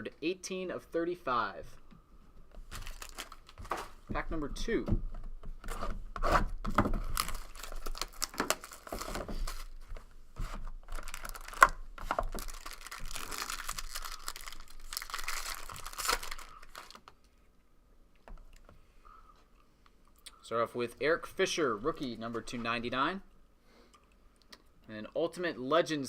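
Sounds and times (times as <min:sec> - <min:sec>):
wrapper being torn and crinkled: 0:02.7 - 0:03.8, 0:07.0 - 0:09.8, 0:10.8 - 0:17.2.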